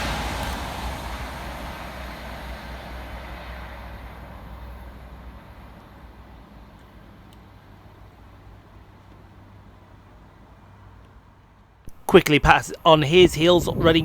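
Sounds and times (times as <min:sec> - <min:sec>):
electric train passing: 0:00.0 - 0:08.3.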